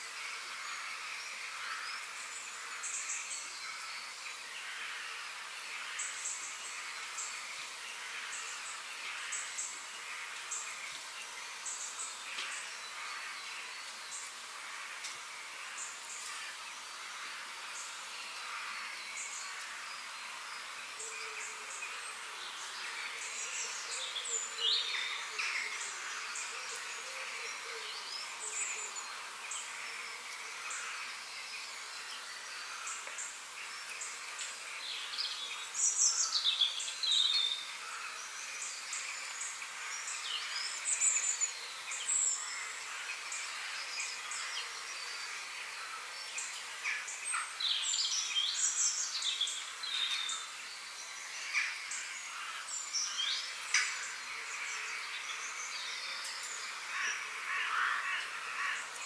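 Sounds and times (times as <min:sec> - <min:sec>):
insects droning: 0:00.0 - 0:59.0
songbirds chirping and whistling: 0:17.6 - 0:59.0.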